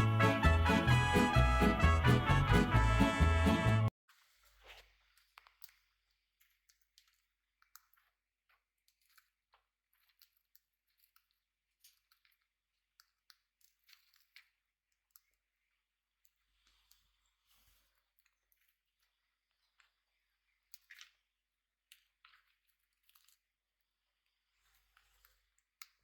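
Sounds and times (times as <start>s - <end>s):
birds pecking and nibbling: 5.1s - 21.2s.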